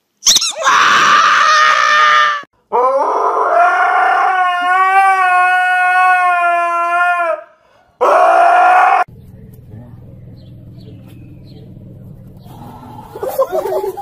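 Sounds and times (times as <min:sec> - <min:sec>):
dog howling: 0:00.6 - 0:09.1.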